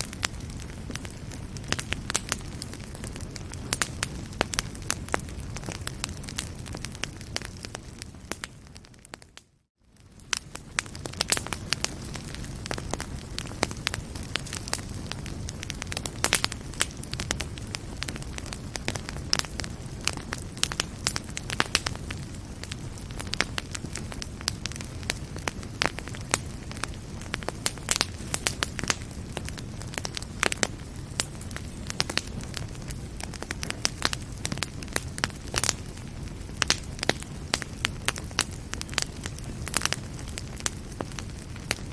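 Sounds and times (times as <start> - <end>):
fire crackling and popping: 0.0 - 41.9
low rumble of flames: 0.0 - 41.9.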